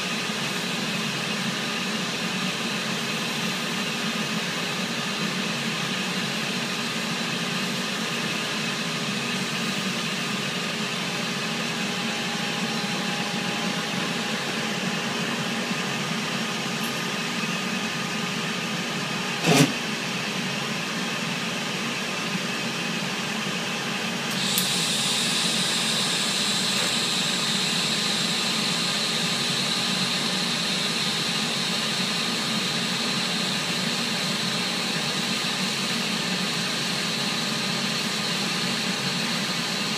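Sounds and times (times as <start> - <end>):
ship machinery humming: 8.6 - 20.0.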